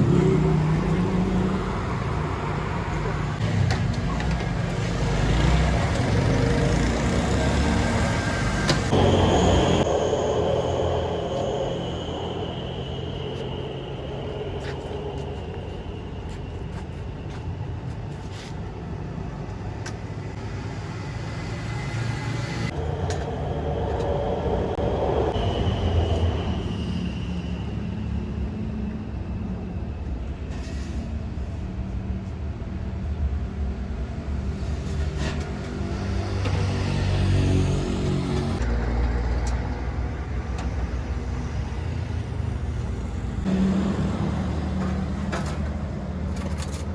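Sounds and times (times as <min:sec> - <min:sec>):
vehicles passing close: 0:00.0 - 0:30.4, 0:31.1 - 0:46.9
road traffic rumbling: 0:00.0 - 0:46.9.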